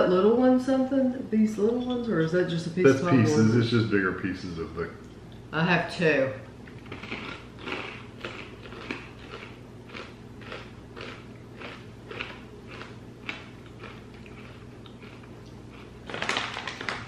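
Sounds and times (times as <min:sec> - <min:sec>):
person chewing crunchy popcorn: 0:06.7 - 0:17.0.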